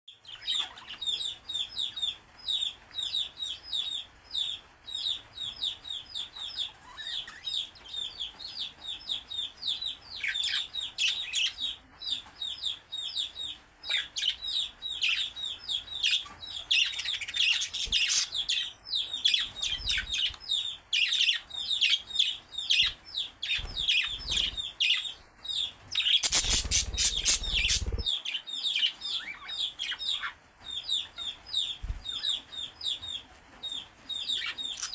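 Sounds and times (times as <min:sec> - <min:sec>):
budgerigars chirping: 0:12.6 - 0:28.1, 0:33.7 - 0:34.9
loud rustling: 0:26.2 - 0:28.1.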